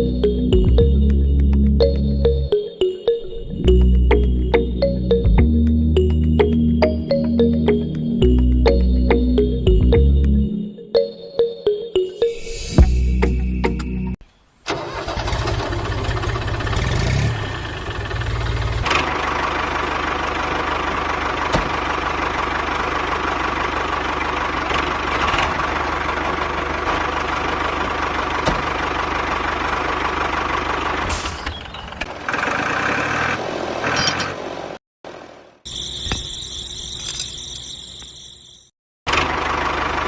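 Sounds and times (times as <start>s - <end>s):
mini tractor engine running: 14.7s - 31.0s, 39.1s - 40.0s.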